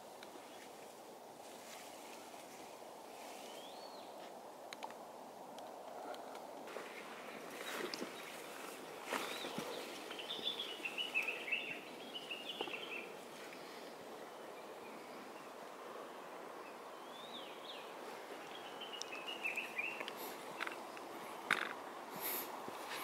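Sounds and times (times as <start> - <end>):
steady background hiss: 0.0 - 23.0
bird singing: 7.5 - 21.9.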